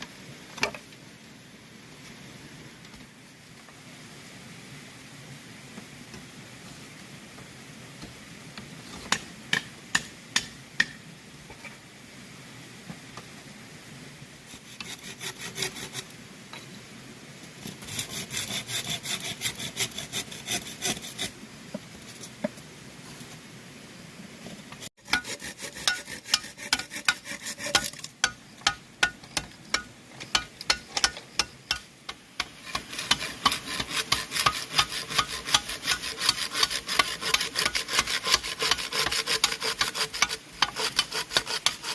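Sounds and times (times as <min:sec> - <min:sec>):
hand saw cutting bamboo: 0:14.5 - 0:16.1, 0:17.6 - 0:21.4, 0:25.0 - 0:41.9.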